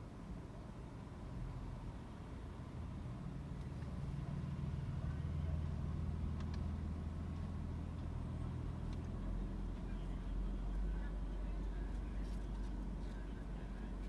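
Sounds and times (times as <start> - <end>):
faint clicks: 6.4 - 6.7.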